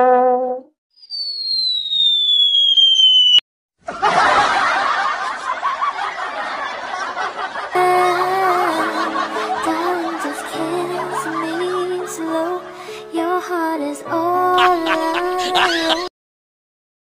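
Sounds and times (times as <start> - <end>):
high tone sliding downward: 1.0 - 3.4
crowd laughing: 3.8 - 13.0, 14.6 - 16.1.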